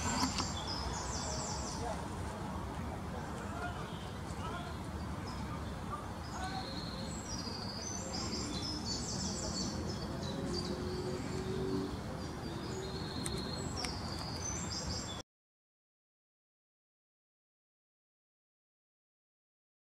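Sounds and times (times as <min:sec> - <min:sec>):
birds chirping: 0:00.0 - 0:15.2
low background noise: 0:00.0 - 0:15.2.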